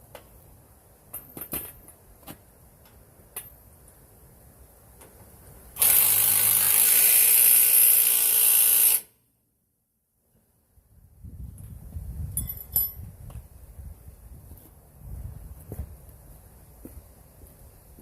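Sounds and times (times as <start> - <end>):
impact wrench running: 5.8 - 9.1.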